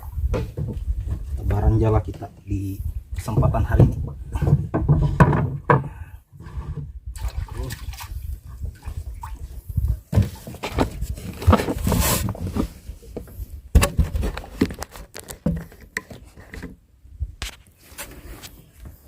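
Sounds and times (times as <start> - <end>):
wet net rustling and knocking: 10.1 - 16.3.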